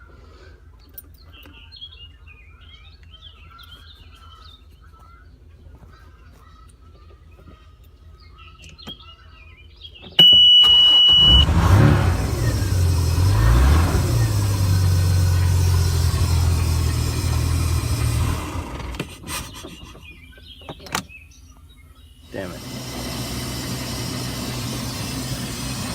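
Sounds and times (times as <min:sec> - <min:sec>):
loud high beep: 0:10.2 - 0:11.5
boat engine starting and idling: 0:10.2 - 0:20.4, 0:22.2 - 0:25.9.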